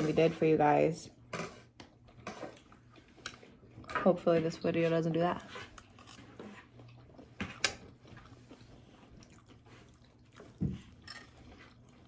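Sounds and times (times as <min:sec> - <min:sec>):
person chewing: 0:05.8 - 0:12.0.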